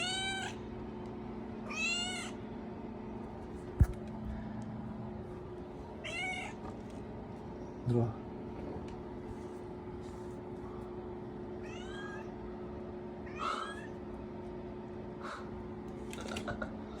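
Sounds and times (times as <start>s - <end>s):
kitten meowing: 0.0s - 0.6s, 1.7s - 2.4s, 6.0s - 6.6s, 11.6s - 12.3s, 13.3s - 13.9s
faint steady hum: 0.0s - 17.0s.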